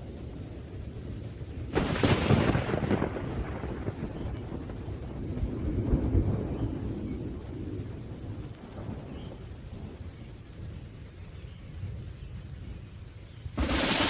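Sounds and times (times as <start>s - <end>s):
steady falling rain: 0.0s - 14.0s
rolling thunder rumbling: 1.4s - 9.2s, 13.5s - 14.0s.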